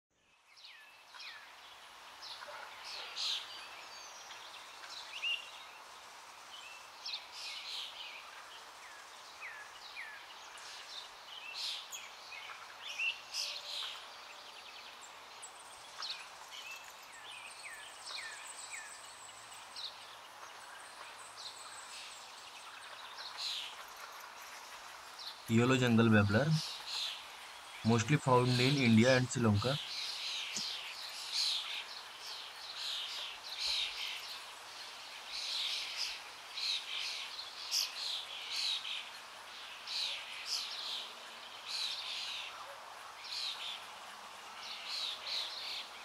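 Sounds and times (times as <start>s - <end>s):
faint steady hiss: 0.2s - 46.0s
birds chirping and calling: 16.0s - 34.4s.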